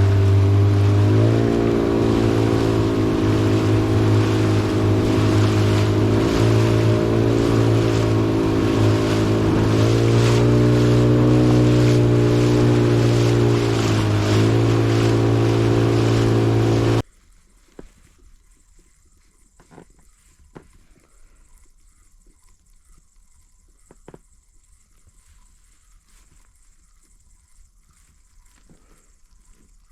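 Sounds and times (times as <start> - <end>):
outboard motor running: 0.0 - 17.0
water splashing against boat: 0.0 - 17.0.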